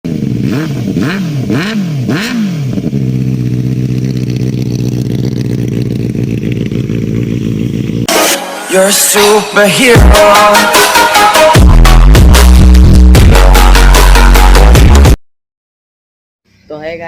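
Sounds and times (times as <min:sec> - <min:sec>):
motorcycle engine revving and idling: 0:00.0 - 0:08.1.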